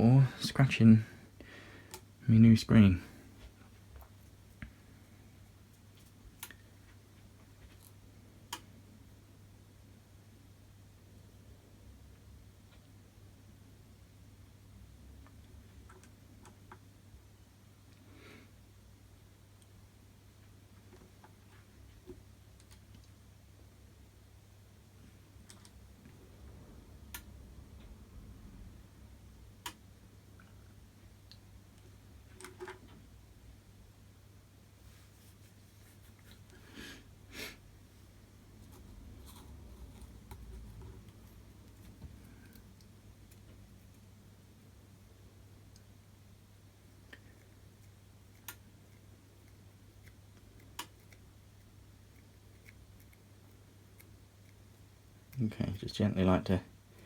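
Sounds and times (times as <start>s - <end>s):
low steady hum: 0.0s - 57.0s
faint sharp clicks and ticks: 5.7s - 8.7s, 20.4s - 23.2s, 27.1s - 28.0s, 45.5s - 46.0s, 46.8s - 55.8s.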